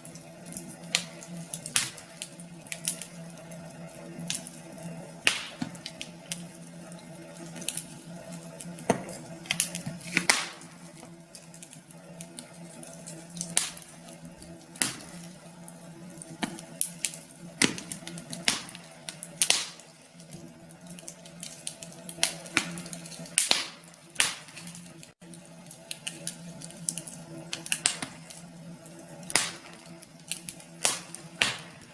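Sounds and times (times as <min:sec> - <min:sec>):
faint steady hum: 0:00.0 - 0:31.9
wood fire crackling and popping: 0:00.0 - 0:31.9.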